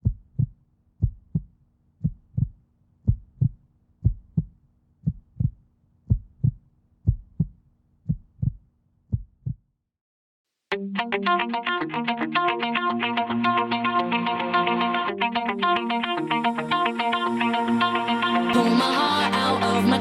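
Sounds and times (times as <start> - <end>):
heartbeat thumps: 0.0 - 9.6.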